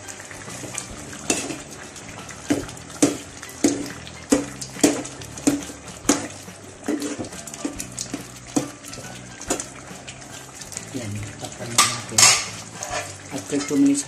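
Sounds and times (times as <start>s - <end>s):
metal spoon clinking on a pot: 11.7s - 14.0s.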